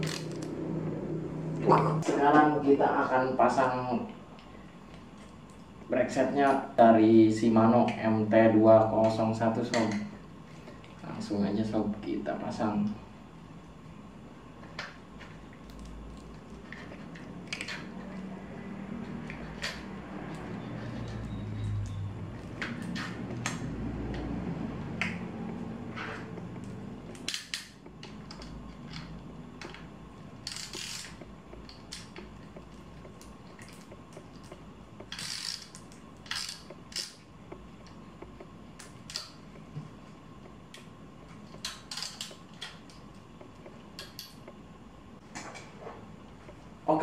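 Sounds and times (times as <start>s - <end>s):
hand tools clicking and tapping: 14.7s - 39.8s, 40.4s - 44.7s.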